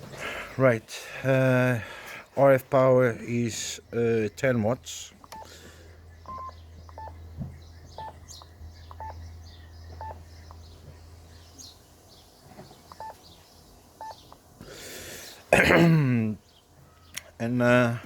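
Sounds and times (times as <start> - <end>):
low hum: 3.8 - 14.2
faint bird chirps: 5.2 - 14.5
short electronic key beeps: 6.2 - 7.2, 8.0 - 9.2, 12.9 - 13.2.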